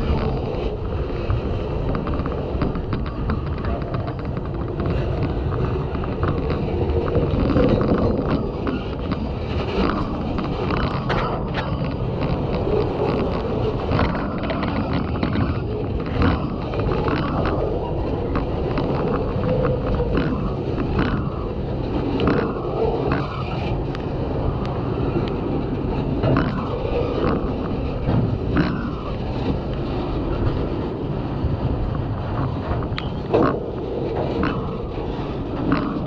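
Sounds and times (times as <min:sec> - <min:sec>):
train wheels rumbling on rail: 0:00.0 - 0:36.0
clicks and clunks: 0:01.3 - 0:24.0.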